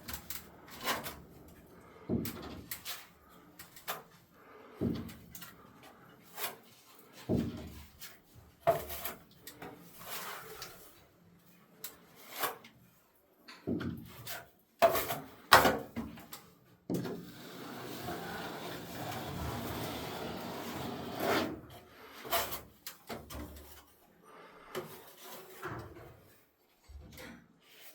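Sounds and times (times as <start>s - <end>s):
tools scraping ceiling: 0.1s - 1.4s, 17.0s - 23.9s.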